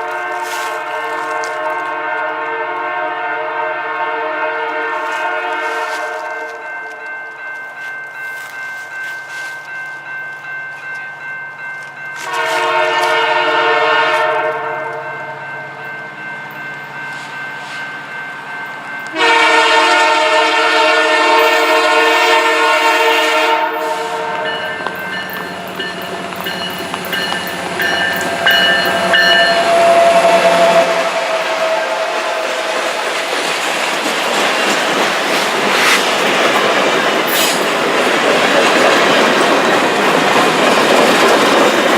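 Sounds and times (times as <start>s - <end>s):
train horn blasts: 0.0s - 7.0s, 12.2s - 15.5s, 19.0s - 26.1s, 27.0s - 33.6s
crossing bell ringing: 5.0s - 41.9s
train rumbling past: 8.0s - 41.9s.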